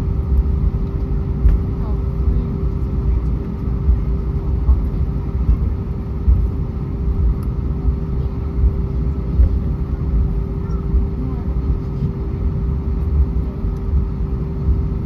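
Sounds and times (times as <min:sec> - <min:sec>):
aircraft cabin low rumble: 0:00.0 - 0:15.0
constant hum: 0:00.0 - 0:15.0.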